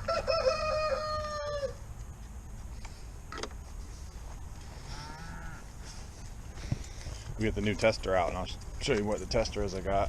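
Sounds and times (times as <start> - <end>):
rooster crowing: 0.0 - 1.8.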